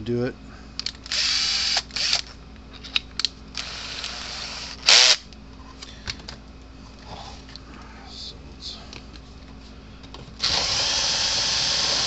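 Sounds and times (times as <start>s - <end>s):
power drill drilling plastic: 10.4s - 12.0s.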